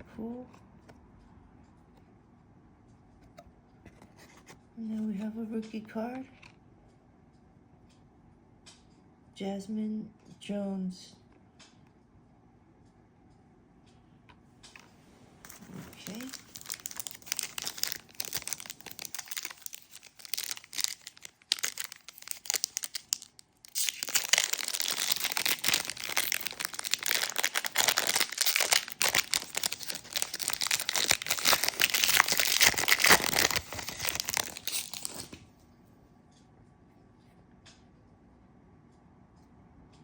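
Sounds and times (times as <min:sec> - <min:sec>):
wrapper crinkling and tearing: 0:15.5 - 0:35.4.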